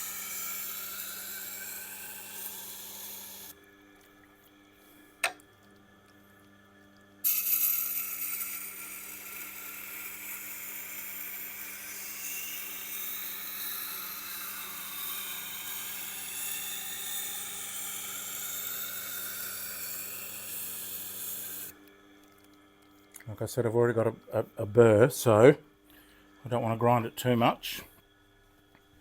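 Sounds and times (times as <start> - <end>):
steel hissing on grinding wheel: 0.0 - 3.5, 7.3 - 21.7
grinder motor hum: 0.0 - 3.6, 7.3 - 21.8.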